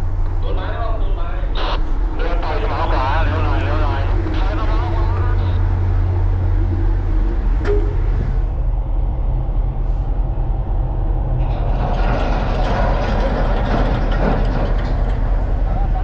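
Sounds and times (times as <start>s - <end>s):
engine and machinery rumble: 0.0s - 16.0s.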